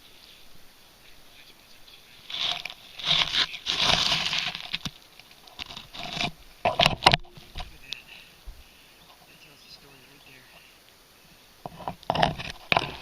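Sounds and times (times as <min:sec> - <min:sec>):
wet leaves and twigs crunching: 0:02.1 - 0:06.4.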